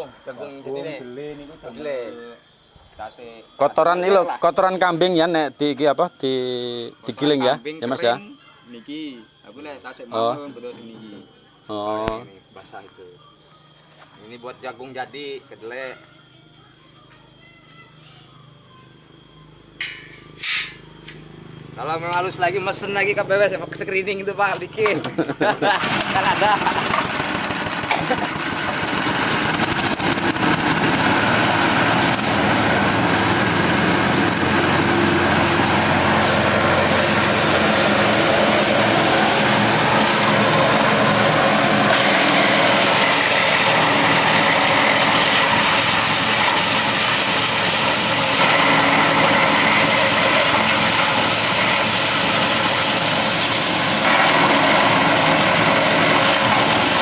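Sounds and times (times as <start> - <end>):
forage chopper engine running: 21.0 - 57.0.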